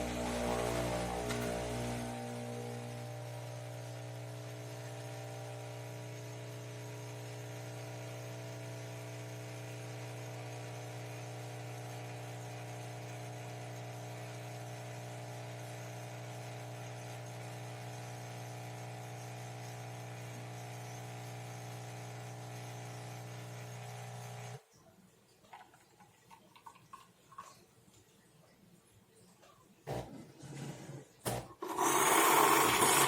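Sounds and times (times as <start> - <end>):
espresso machine humming: 0.0 - 24.6, 31.6 - 33.0.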